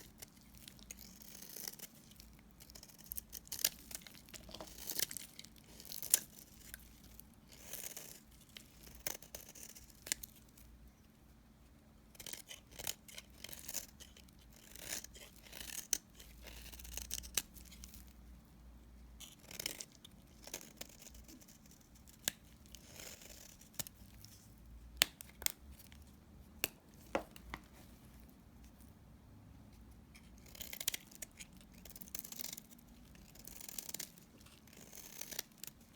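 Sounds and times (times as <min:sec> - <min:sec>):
knife cutting soap: 0:00.0 - 0:10.5, 0:12.1 - 0:18.2, 0:19.2 - 0:28.0, 0:29.8 - 0:35.9
knife scraping soap: 0:00.0 - 0:10.5, 0:12.1 - 0:18.2, 0:19.1 - 0:24.5, 0:29.8 - 0:35.9.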